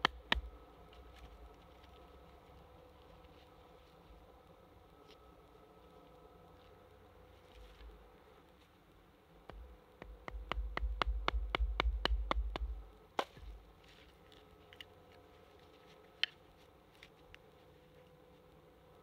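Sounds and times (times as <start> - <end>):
hard knock on wood: 9.5 - 12.8.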